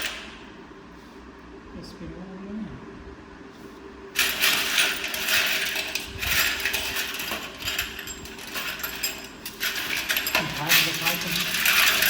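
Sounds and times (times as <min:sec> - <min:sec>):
metal tools clattering: 0:04.2 - 0:12.0.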